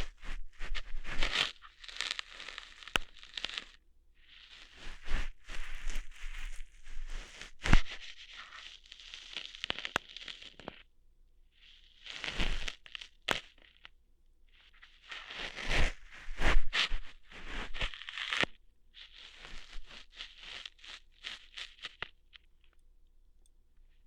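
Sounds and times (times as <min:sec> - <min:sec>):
close scratching and rustling: 0:00.0 - 0:03.8
sharp snap: 0:02.9 - 0:03.2.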